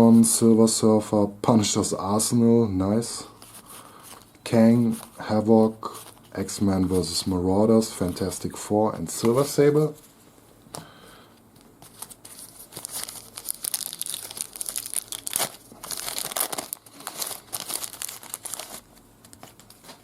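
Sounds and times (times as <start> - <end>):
wrapper crinkling and tearing: 11.9 - 20.0.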